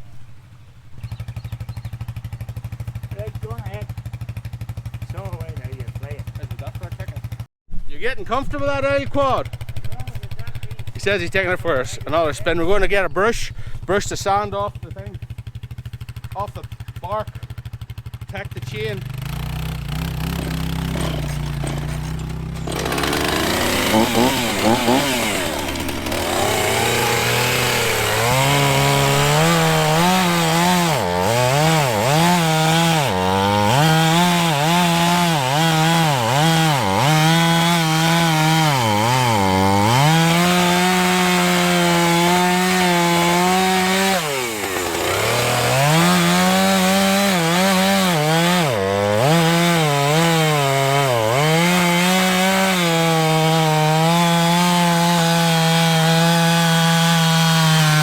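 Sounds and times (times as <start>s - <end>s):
chainsaw cutting wood: 15.0s - 58.0s.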